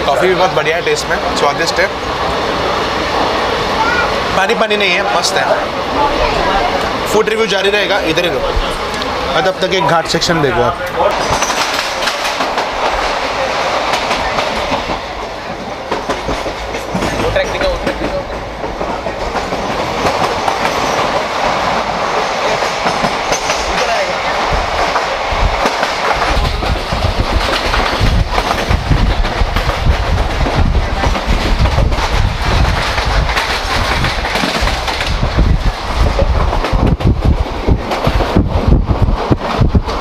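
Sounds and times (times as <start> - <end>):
train wheels clattering over rails: 6.8 - 40.0
heavy low rumble: 24.3 - 40.0.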